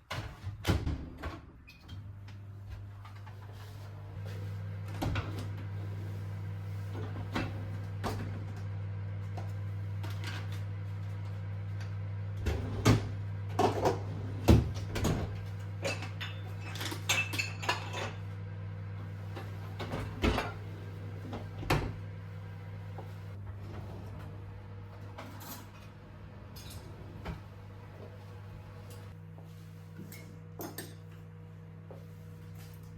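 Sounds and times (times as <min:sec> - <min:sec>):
dishes and utensils clinking: 0:15.8 - 0:18.2, 0:30.6 - 0:31.1.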